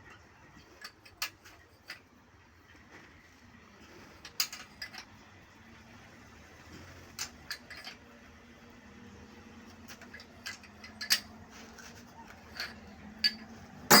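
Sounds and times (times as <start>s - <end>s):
tools clicking and tapping: 12.5s - 14.0s.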